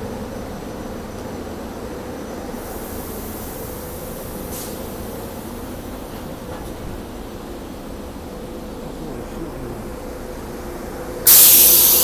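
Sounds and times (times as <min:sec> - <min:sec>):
train rumbling with hum: 0:00.0 - 0:12.0
high hiss: 0:11.2 - 0:12.0.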